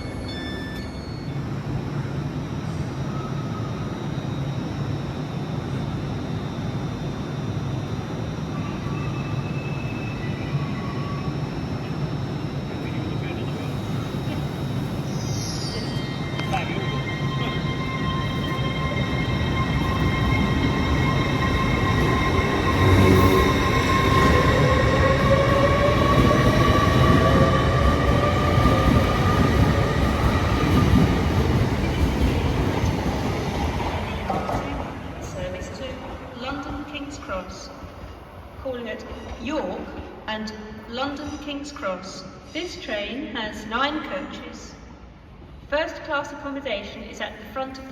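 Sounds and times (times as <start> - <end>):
train rumble: 15.8 - 40.3.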